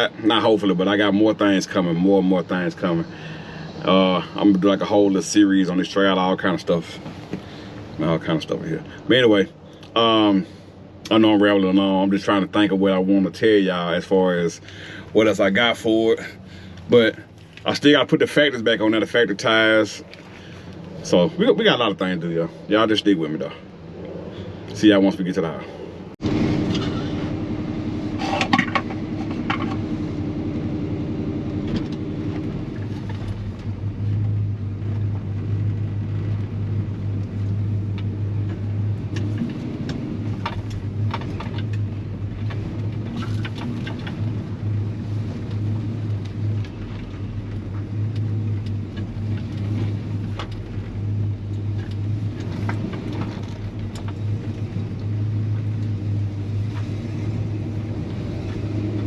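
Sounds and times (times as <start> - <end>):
pickup engine and exhaust drone: 0.0 - 59.0
light clicks and rattles: 32.8 - 57.3.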